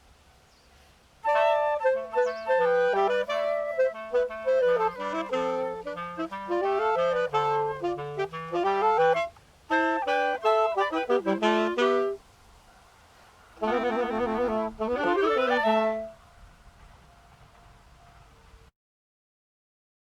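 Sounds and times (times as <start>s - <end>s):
woodwind trio playing: 1.2s - 12.2s, 13.6s - 16.3s.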